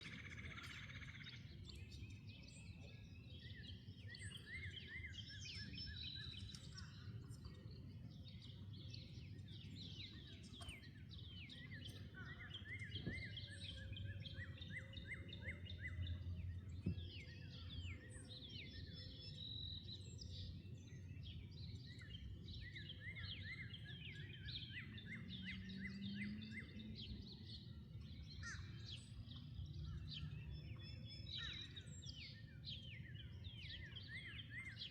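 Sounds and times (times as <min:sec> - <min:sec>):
songbirds chirping and singing: 0:00.0 - 0:34.9.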